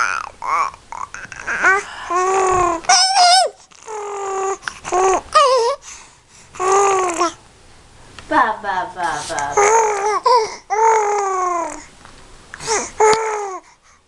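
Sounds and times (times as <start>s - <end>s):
baby squealing and cooing: 0.0s - 5.8s, 6.6s - 7.4s, 9.6s - 11.9s.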